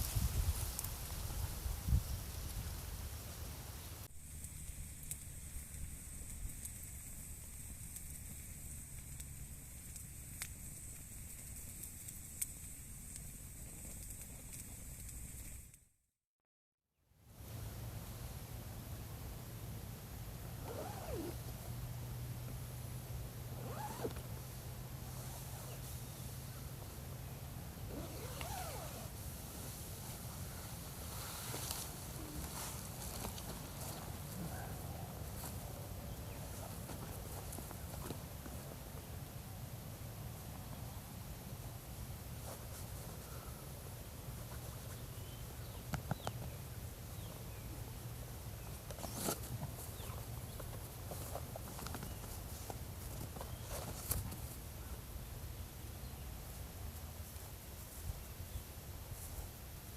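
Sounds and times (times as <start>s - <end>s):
rustling snap: 27.9s - 29.1s
small birds chirping: 44.7s - 47.8s, 48.6s - 54.1s.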